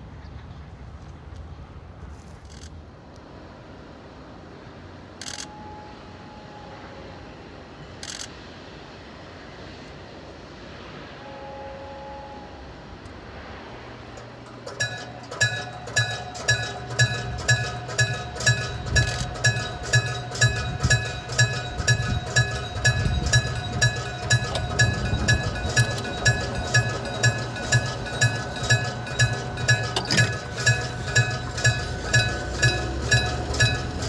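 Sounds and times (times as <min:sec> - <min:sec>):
level crossing warning bell: 0:13.5 - 0:34.0.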